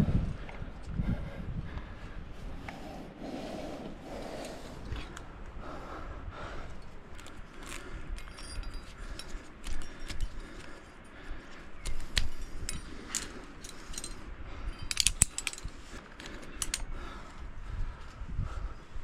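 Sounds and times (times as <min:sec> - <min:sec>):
metal climbing gear clinking: 0:06.6 - 0:17.4.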